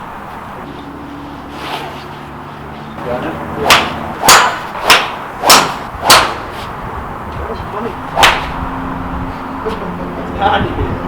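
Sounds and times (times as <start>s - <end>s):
golf club swishing through air: 1.4s - 2.3s.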